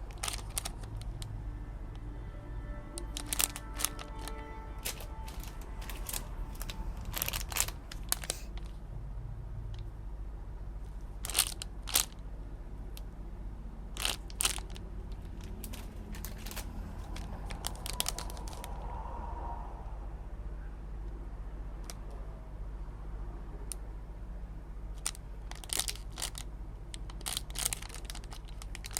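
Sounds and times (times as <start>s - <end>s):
plastic packaging crinkling: 0.0s - 1.3s, 3.0s - 8.8s, 11.2s - 12.2s, 13.9s - 18.8s, 25.0s - 28.9s
steady low hum: 0.0s - 28.9s.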